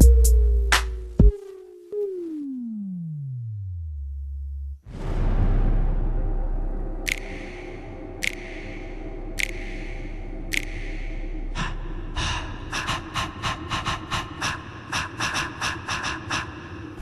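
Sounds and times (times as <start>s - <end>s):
sustained synth tone: 6.0s - 13.2s
sharp breathy gasps: 7.1s - 17.0s.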